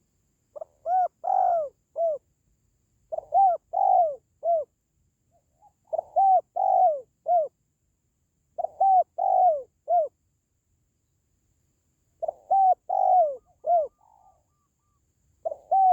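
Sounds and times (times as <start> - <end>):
dove cooing: 0.6 - 2.2, 3.1 - 4.7, 5.4 - 7.6, 8.6 - 10.1, 12.2 - 15.9.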